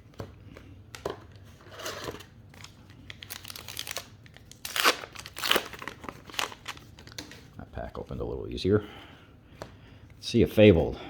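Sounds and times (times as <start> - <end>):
wrapper crinkling and tearing: 1.8 - 7.4.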